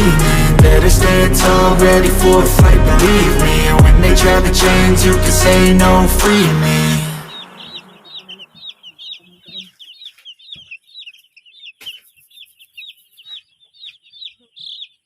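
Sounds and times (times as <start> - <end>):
background music: 0.0 - 9.0
chicks peeping: 6.6 - 15.0.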